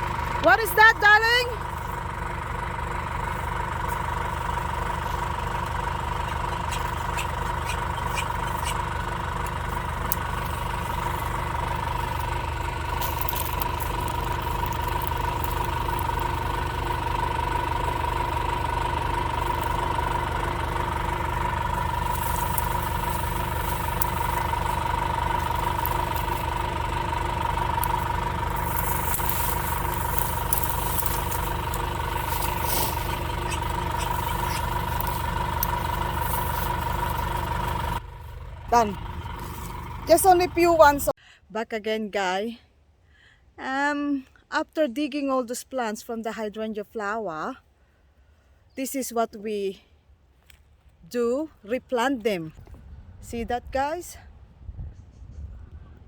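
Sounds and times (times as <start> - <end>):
engine whine: 0.0 - 41.2
tractor engine running: 0.0 - 41.2.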